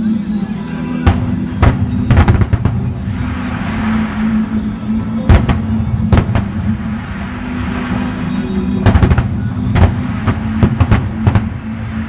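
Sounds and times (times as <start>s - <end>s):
steady low drone: 0.0s - 12.0s
fireworks bursting: 1.0s - 12.0s.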